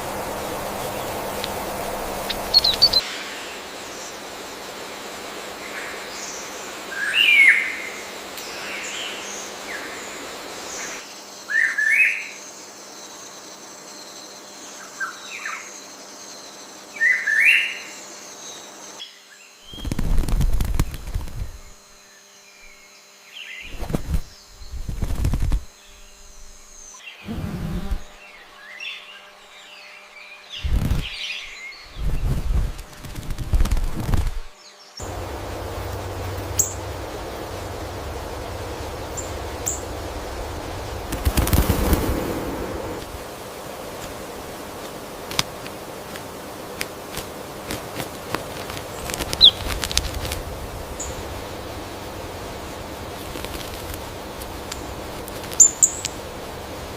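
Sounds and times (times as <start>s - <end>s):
bird chirping: 0.0s - 3.6s, 34.8s - 43.0s, 48.8s - 53.2s, 54.5s - 56.2s
soft hiss: 0.0s - 11.1s, 30.6s - 56.9s.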